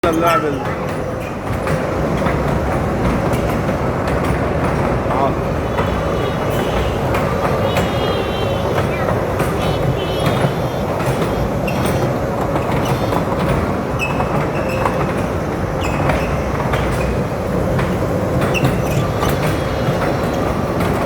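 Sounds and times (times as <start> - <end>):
ride-on train rumble and rattle: 0.0 - 21.0
high squeaks and clicks: 5.2 - 17.2, 18.4 - 20.9
motor hum: 5.4 - 14.5.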